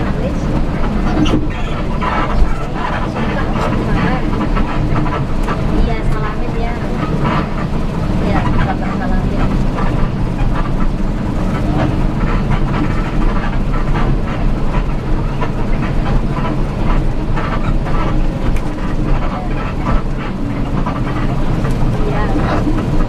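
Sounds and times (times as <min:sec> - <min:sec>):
rattling clatter: 0:00.0 - 0:23.0
vehicle engine and road rumble: 0:00.0 - 0:23.0.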